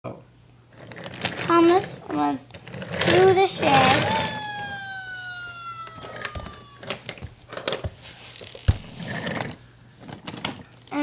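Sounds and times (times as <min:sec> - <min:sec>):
tone sliding downward: 0:03.6 - 0:07.3.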